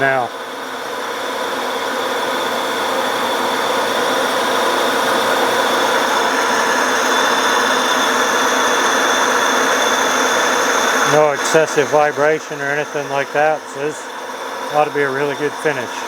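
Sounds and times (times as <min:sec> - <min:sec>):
metal lathe cutting with high whine: 0:00.0 - 0:16.0.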